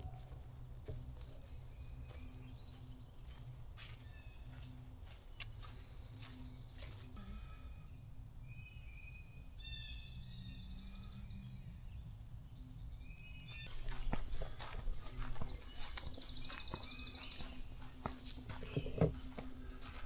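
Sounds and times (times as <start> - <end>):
wild birds singing: 0.0 - 20.0.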